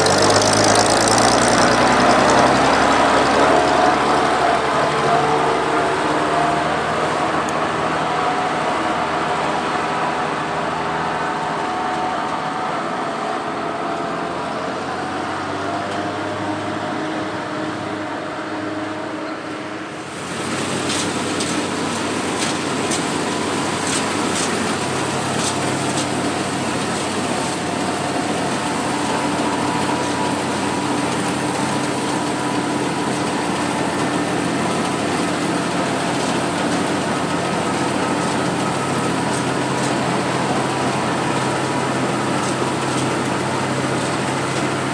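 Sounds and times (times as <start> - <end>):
sharp ticks: 0.0 - 3.5
threshing machinery clatter: 0.0 - 7.8, 20.0 - 44.9
combine engine running under load: 0.0 - 44.9.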